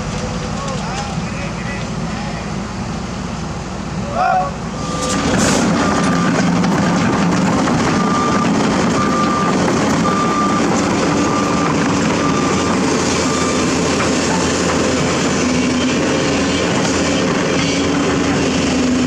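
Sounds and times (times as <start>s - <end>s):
diesel engine running: 0.0s - 19.0s
truck reversing alarm beeping: 4.6s - 19.0s.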